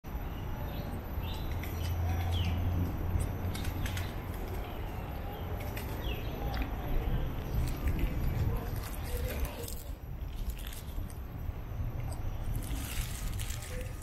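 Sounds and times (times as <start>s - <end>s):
birds chirping: 0.1s - 9.6s
steady low rumble: 0.1s - 14.0s.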